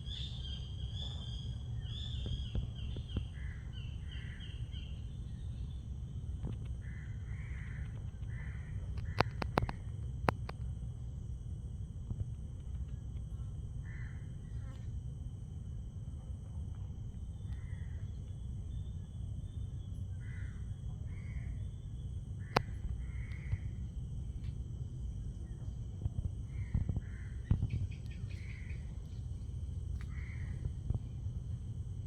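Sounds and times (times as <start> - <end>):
insects droning: 0.0 - 32.0
low rumble: 0.0 - 32.0
sharp clicks: 9.0 - 10.6.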